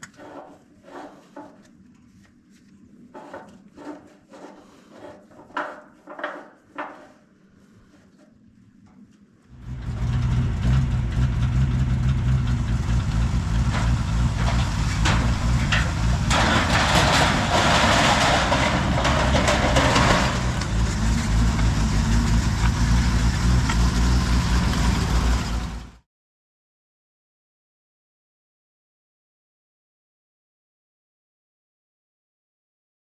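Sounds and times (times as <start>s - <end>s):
heavy vehicle engine humming: 9.5s - 26.0s.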